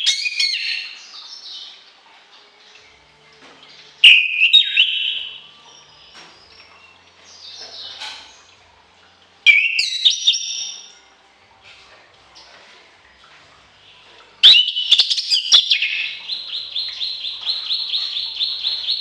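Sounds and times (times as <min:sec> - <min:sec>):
songbird singing: 0:00.0 - 0:01.8, 0:03.8 - 0:08.6, 0:09.5 - 0:11.0, 0:13.9 - 0:19.0.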